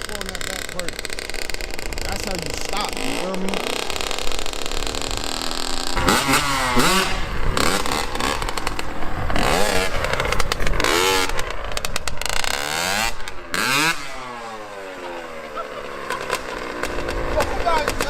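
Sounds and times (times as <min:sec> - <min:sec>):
two-stroke dirt bike engine revving: 0:00.0 - 0:18.0.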